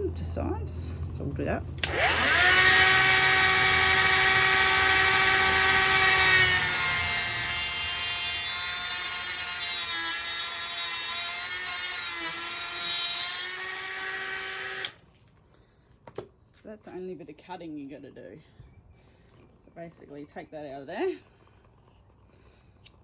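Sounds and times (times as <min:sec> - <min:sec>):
power tool cutting plastic: 0:01.8 - 0:15.0.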